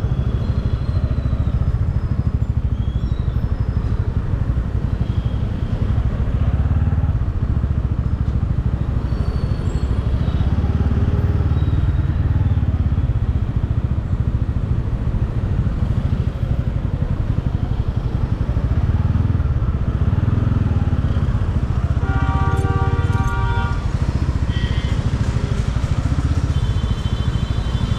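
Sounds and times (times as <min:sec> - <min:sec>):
motorcycle engine rumbling: 0:00.0 - 0:27.9
road and wind noise: 0:00.0 - 0:27.9
vehicle horn tone: 0:22.0 - 0:25.2, 0:26.5 - 0:27.9.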